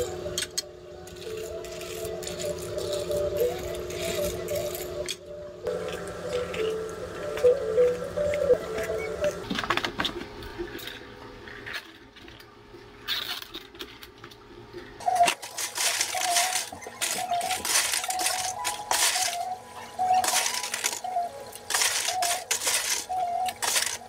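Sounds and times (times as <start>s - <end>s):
ice cubes clattering into plastic cups: 15.0s - 24.0s.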